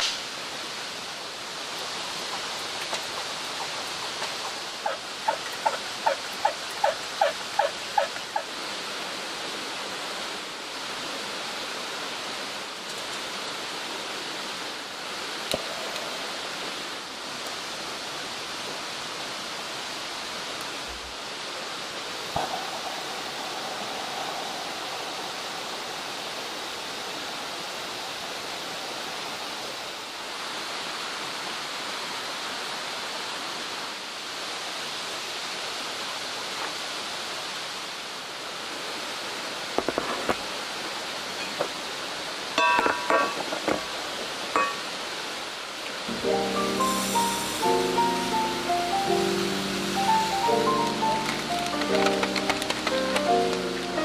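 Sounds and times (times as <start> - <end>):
stream flowing: 0.0 - 54.0
animal pitched calls: 3.1 - 8.5.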